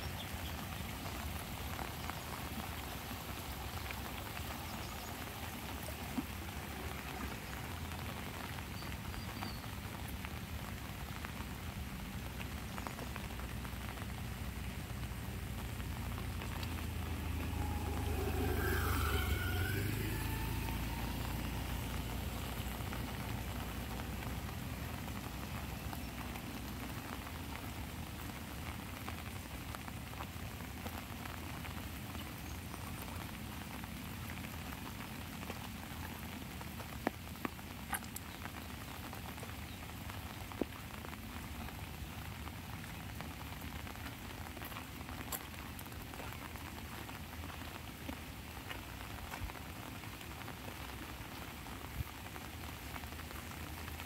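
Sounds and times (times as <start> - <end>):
rain pattering on an umbrella: 0.0 - 54.0
low rumble with wavering whine: 13.8 - 27.6.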